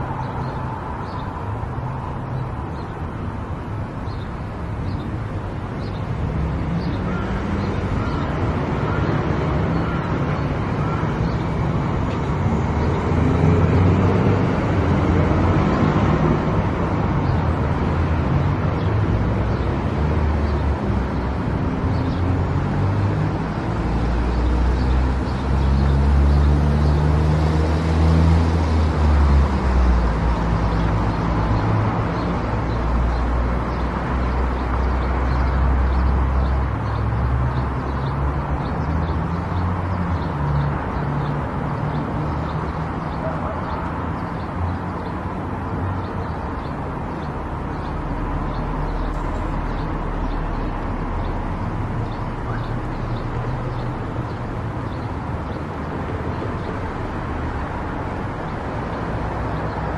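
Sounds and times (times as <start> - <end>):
tyre and road noise: 0.0 - 59.9.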